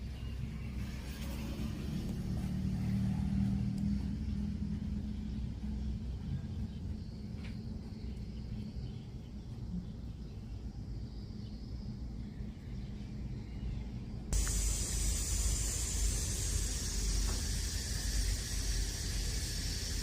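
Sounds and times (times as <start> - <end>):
bright steady hiss: 14.3 - 20.0
radio low hum: 14.4 - 20.0.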